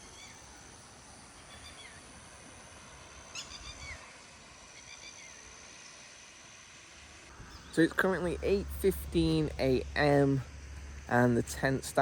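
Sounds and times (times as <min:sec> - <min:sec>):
birds chirping: 0:00.0 - 0:06.1, 0:07.3 - 0:12.0
high-pitched hum: 0:07.3 - 0:12.0.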